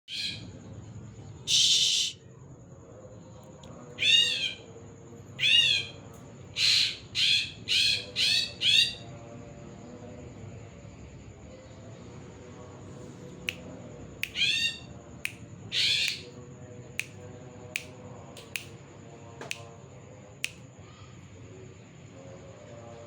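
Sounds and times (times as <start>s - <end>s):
harsh rasping bird call: 1.5s - 2.2s, 14.3s - 14.9s, 15.7s - 16.2s
bird chip calls: 15.7s - 16.2s.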